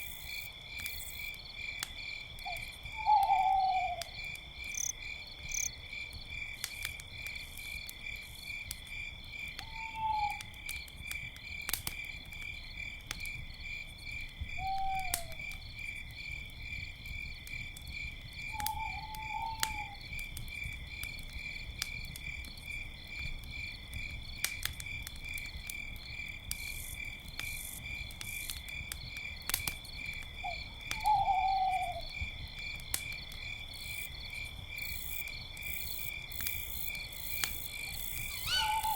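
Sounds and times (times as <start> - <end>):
campfire crackles: 0.0 - 38.9
crickets chirping: 0.0 - 38.9
owl hooting: 3.0 - 4.0, 9.6 - 10.4, 14.6 - 15.4, 18.6 - 20.0, 31.0 - 32.0, 38.3 - 38.9.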